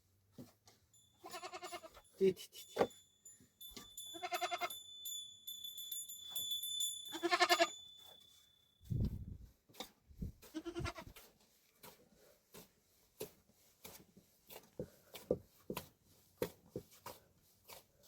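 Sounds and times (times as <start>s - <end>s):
goat bleating: 1.2s - 2.0s, 4.2s - 4.7s, 7.2s - 7.7s, 10.5s - 11.1s.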